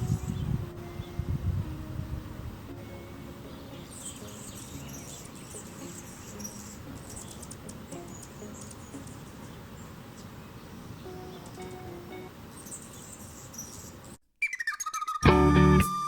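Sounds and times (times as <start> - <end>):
hummingbird chips and ticks: 3.8 - 10.4.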